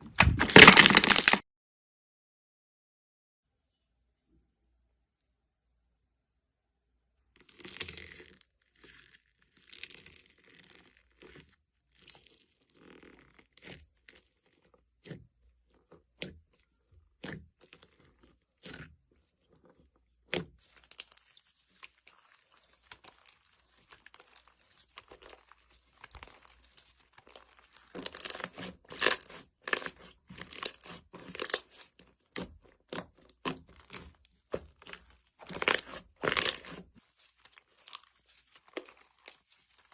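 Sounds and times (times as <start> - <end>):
slime squishing: 0.0 - 1.4, 7.3 - 39.9.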